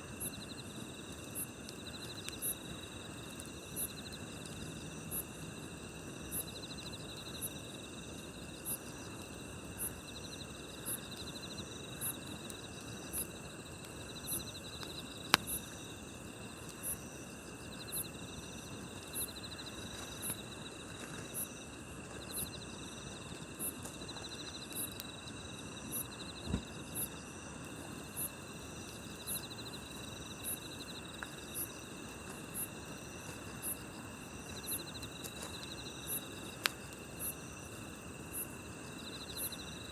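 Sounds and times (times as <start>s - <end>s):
campfire hissing: 0.0s - 39.9s
insects chirping in chorus: 0.0s - 39.9s
campfire pop: 0.1s - 17.6s, 26.4s - 27.0s, 31.1s - 38.0s.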